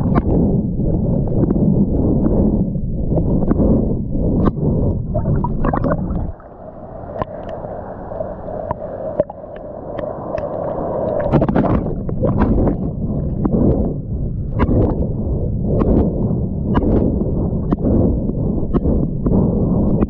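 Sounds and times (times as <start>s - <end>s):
low rumble: 0.0s - 20.0s
water splashing around swimmer: 9.9s - 13.9s.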